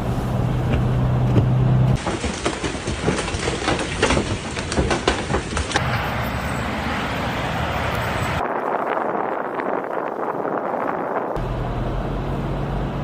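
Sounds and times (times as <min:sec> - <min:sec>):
knocks and clatters: 0:00.7 - 0:06.7.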